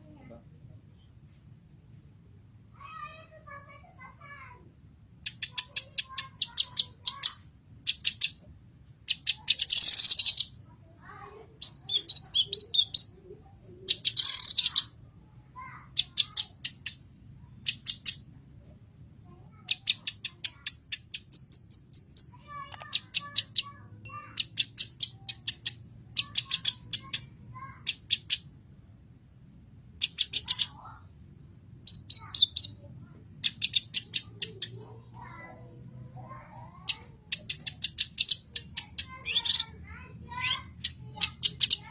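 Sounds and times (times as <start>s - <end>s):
bird singing high chirps: 9.1s - 10.6s, 11.6s - 13.2s, 13.9s - 15.0s, 31.9s - 34.8s, 37.0s - 41.9s.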